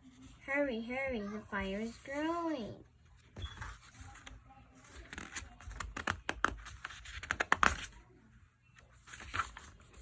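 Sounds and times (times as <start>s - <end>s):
paper rustling: 3.1s - 8.0s, 8.9s - 10.0s.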